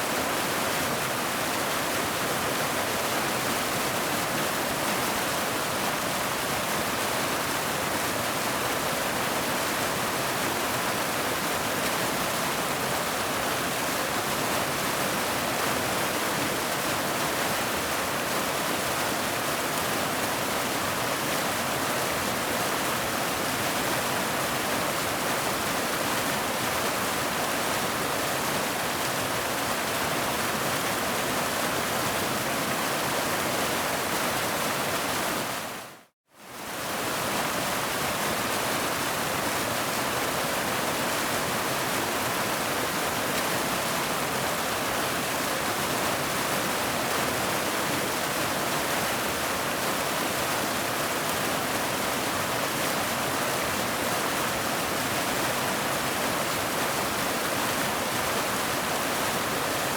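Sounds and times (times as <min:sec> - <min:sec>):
waterfall rushing: 0:36.7 - 0:59.9.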